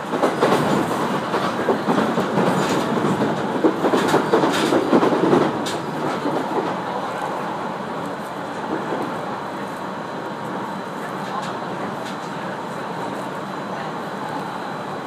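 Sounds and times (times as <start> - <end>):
wheels clacking over rail joints: 0.0 - 6.8
train wheels rumbling on rail: 0.0 - 15.0.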